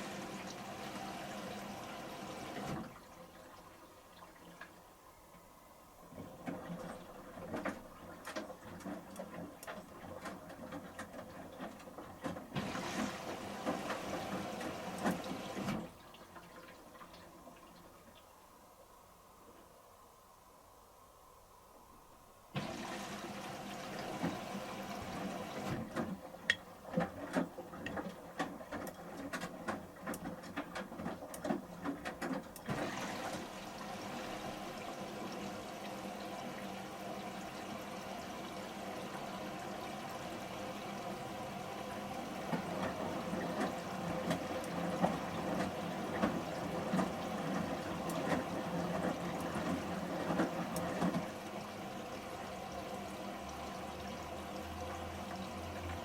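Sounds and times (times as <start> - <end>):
washing machine filling with water: 0.0 - 18.2, 22.5 - 56.0
water splashing and clicking: 2.6 - 18.3, 23.9 - 33.6, 42.2 - 51.5.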